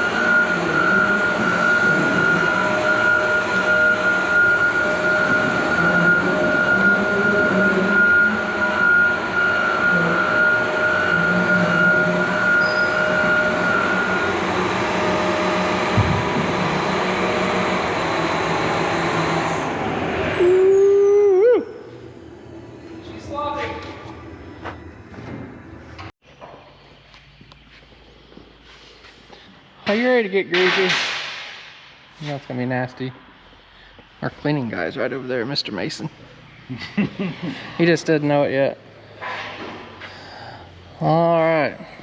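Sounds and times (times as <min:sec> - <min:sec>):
wavering tone: 0:00.0 - 0:19.6, 0:20.2 - 0:23.3
excavator running: 0:00.0 - 0:21.1
steady high whine: 0:00.0 - 0:26.1.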